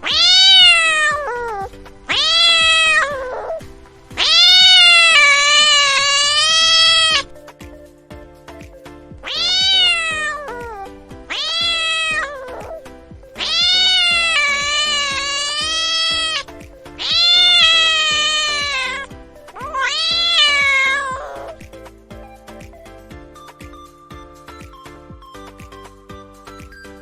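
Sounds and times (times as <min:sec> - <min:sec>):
cat meowing: 0:00.0 - 0:03.6, 0:04.2 - 0:07.3, 0:09.2 - 0:21.6.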